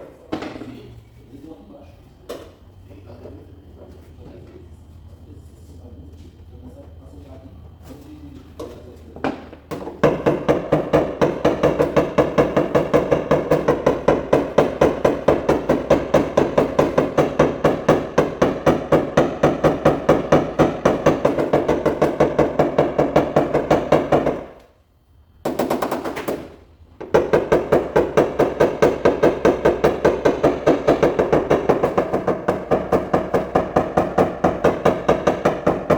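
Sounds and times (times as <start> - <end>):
rapid tapping on sheet metal: 9.7 - 24.6, 25.4 - 35.9.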